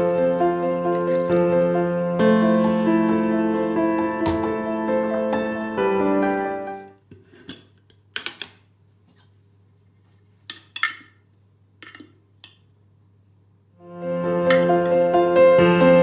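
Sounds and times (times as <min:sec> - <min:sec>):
dishes and utensils clinking: 0:00.0 - 0:01.8, 0:10.5 - 0:11.2, 0:14.5 - 0:15.0.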